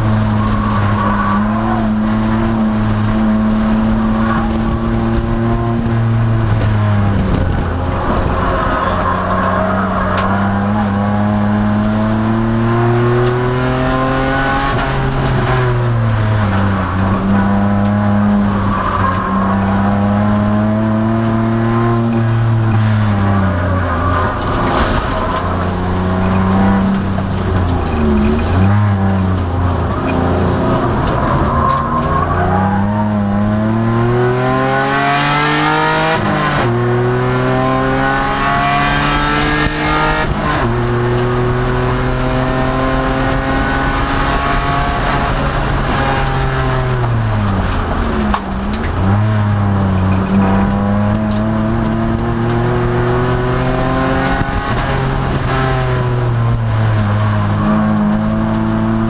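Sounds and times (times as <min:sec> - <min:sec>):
car engine revving on track: 0:00.0 - 0:59.0.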